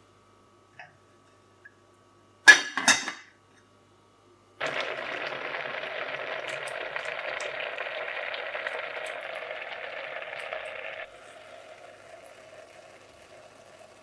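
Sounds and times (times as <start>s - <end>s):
food sizzling in a hot pan: 4.6s - 14.0s.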